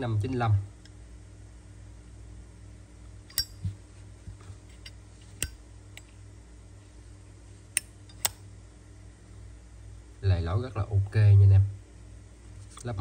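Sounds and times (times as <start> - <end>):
lighter metallic clicks: 3.3 - 3.6, 5.4 - 6.1, 7.8 - 8.4.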